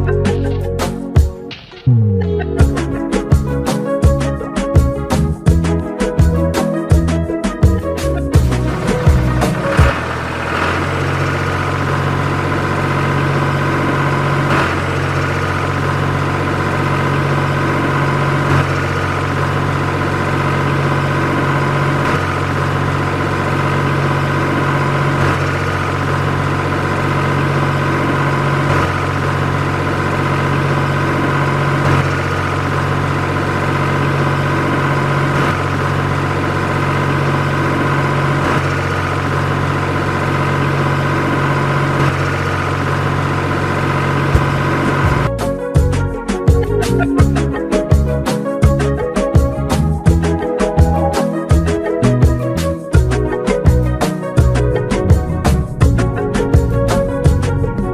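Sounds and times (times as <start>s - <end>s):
engine idling drone: 0.0s - 57.9s.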